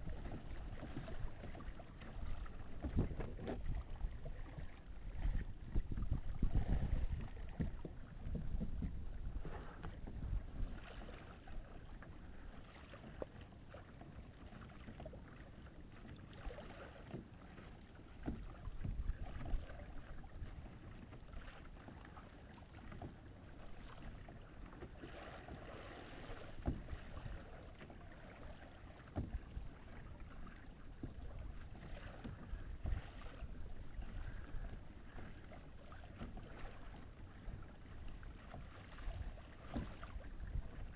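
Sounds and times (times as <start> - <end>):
wind rumbling on microphone: 0.0 - 11.7, 18.3 - 20.7, 36.2 - 40.9
water splashing against hull: 0.0 - 40.9.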